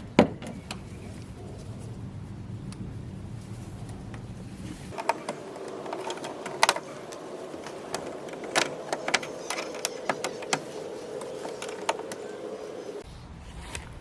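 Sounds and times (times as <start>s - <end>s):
sharp clicks and knocks: 4.9s - 12.5s.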